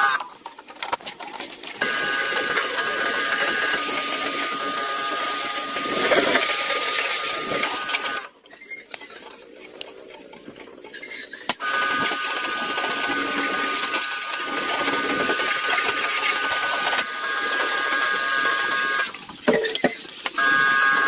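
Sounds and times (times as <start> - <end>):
small motor whining: 1.8 - 8.3, 11.6 - 19.2, 20.4 - 21.0.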